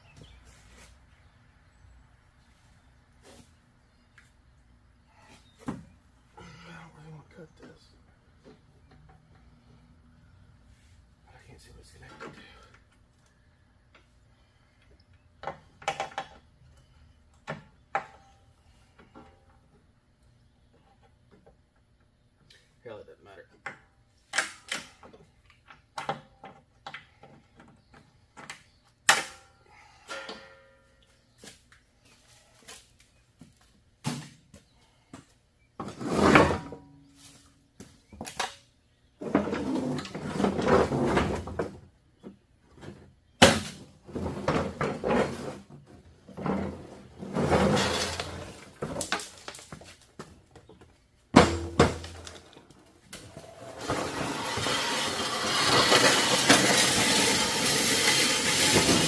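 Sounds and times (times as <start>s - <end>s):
metal knocks and clunks: 51.3s - 52.6s
scraping and rustling: 53.2s - 59.0s.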